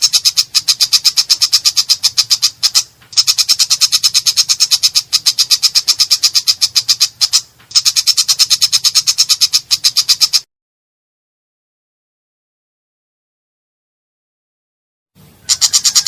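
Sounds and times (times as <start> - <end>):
bird harsh rattling call: 0.0 - 10.4, 15.4 - 16.0.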